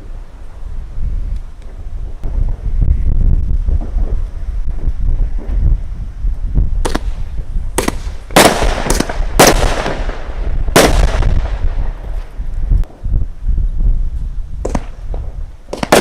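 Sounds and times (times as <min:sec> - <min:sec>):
wind rumble on microphone: 0:00.0 - 0:16.0
fireworks bangs: 0:06.5 - 0:13.2, 0:14.6 - 0:16.0.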